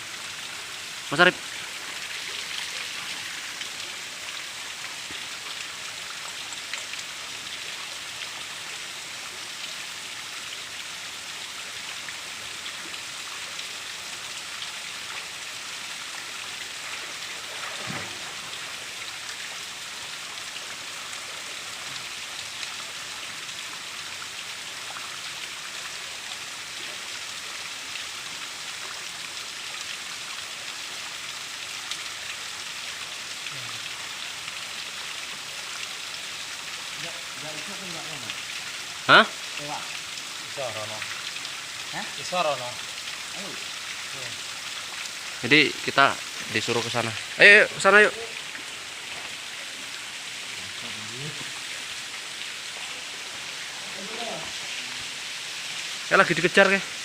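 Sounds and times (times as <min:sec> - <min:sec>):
waterfall rushing: 0:00.0 - 0:05.8, 0:36.5 - 0:57.0.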